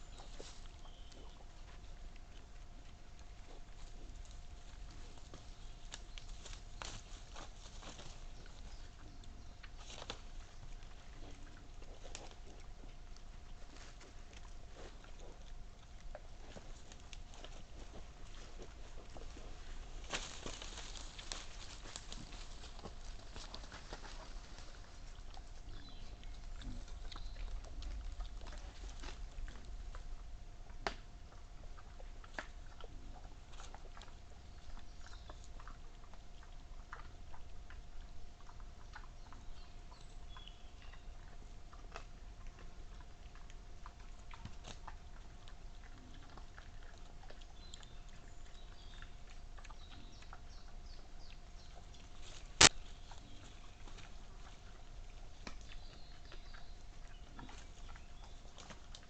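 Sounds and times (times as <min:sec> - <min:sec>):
faint steady hum: 0:00.0 - 0:59.0
wild boar crunching and chewing: 0:00.0 - 0:59.0.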